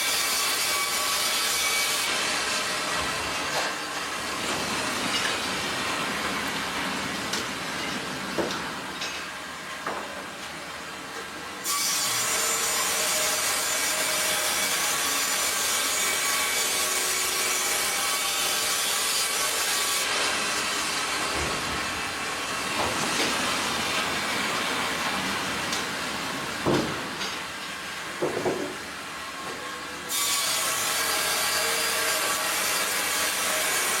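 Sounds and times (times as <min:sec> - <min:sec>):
bandsaw cutting through log: 0:11.6 - 0:23.0, 0:30.1 - 0:34.0.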